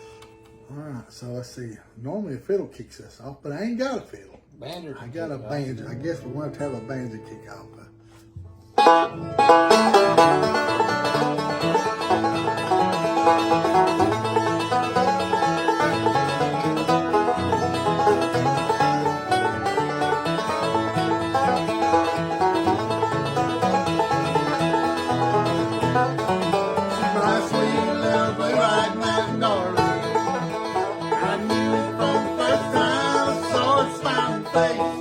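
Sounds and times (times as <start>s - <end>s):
guitar backing: 0.0s - 1.2s, 3.8s - 35.0s
banjo picking: 5.1s - 35.0s.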